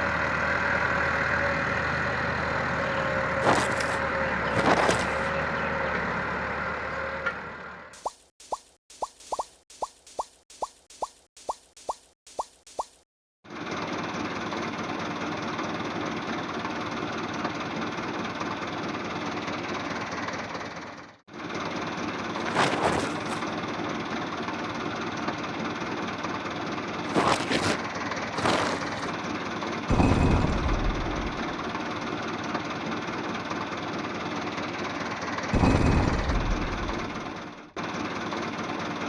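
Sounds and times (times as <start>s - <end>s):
engine running: 0.0s - 8.0s, 13.5s - 39.0s
loud low rumble: 29.9s - 31.8s, 35.6s - 37.4s.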